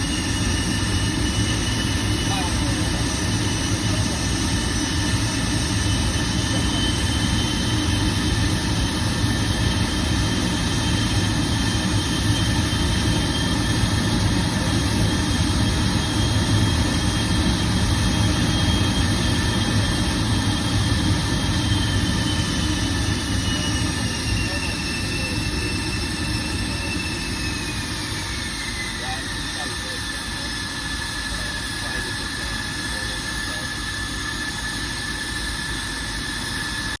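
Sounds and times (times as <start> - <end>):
jet engines roaring with high whine: 0.0 - 37.0.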